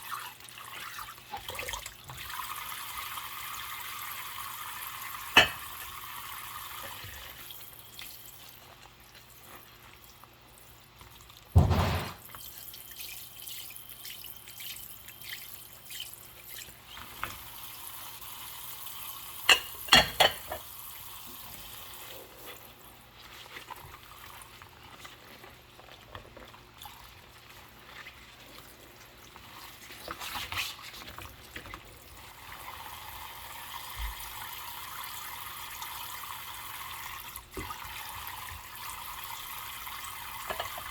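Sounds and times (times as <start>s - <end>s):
tap water running: 0.0s - 40.9s
dishes knocking and clinking: 5.4s - 5.7s, 11.6s - 12.2s, 19.5s - 20.7s, 40.5s - 40.9s.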